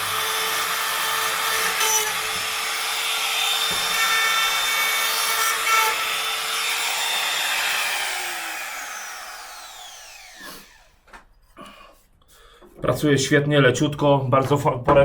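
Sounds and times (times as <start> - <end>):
router motor whining: 0.0 - 11.1.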